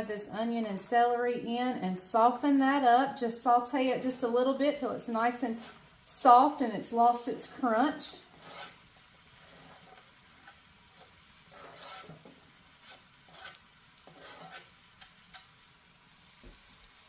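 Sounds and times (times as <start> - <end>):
vegetables sizzling in butter: 0.0 - 17.0
spoon stirring swishes: 5.4 - 6.0, 7.7 - 14.8.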